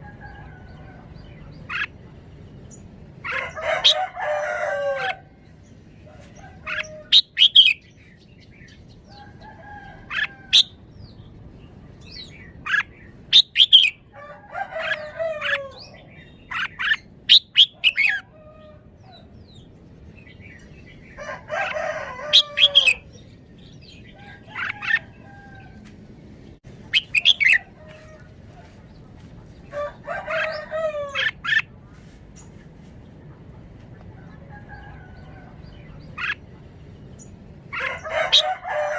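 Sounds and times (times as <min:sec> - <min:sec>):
bird singing chirped phrases: 0:26.9 - 0:27.8.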